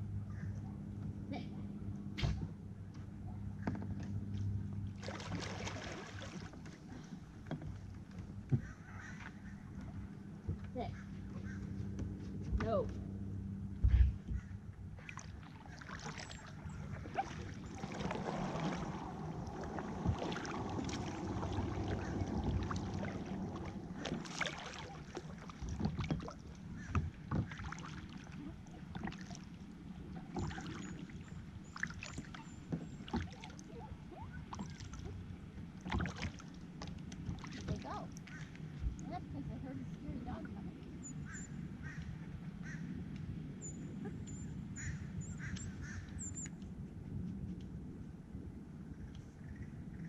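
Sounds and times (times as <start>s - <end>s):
paddle splashing water: 3.6s - 12.2s, 14.9s - 42.8s.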